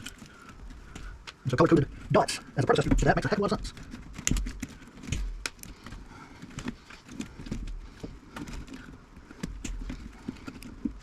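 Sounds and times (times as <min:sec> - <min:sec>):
hand tools clicking and tapping: 0:02.8 - 0:11.0.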